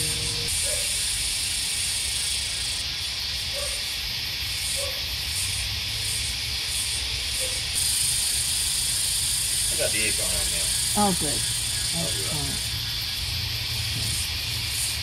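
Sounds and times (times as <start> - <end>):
cicadas buzzing: 0.0 - 15.0
shrill pulsing cicada layer: 0.0 - 15.0.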